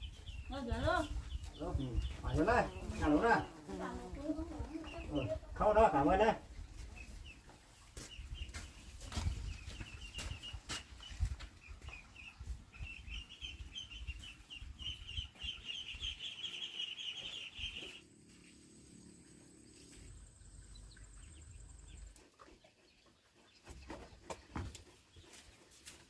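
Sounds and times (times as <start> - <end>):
bird chirping: 6.9 - 25.4
low hum: 17.9 - 22.2.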